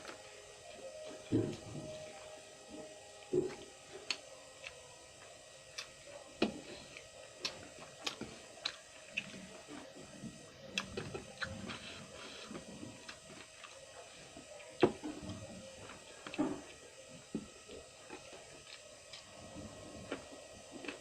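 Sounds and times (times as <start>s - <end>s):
person chewing: 5.7s - 9.5s, 10.7s - 13.8s.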